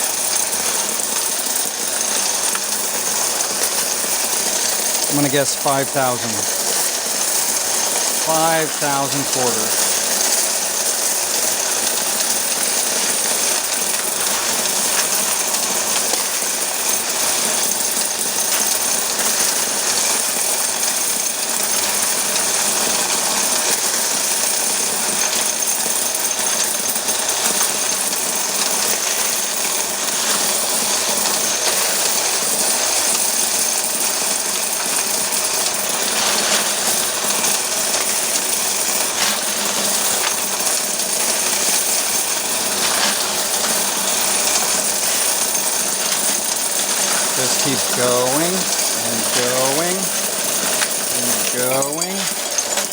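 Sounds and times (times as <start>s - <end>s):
coins rattling through coin counter: 30.2s - 52.9s.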